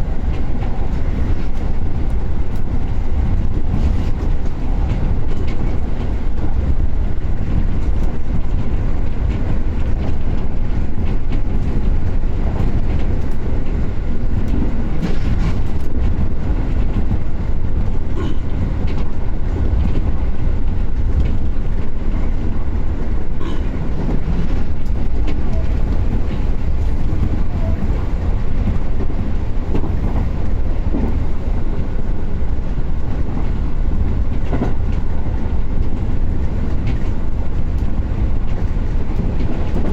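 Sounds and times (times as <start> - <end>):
train interior rumble: 0.0 - 39.9.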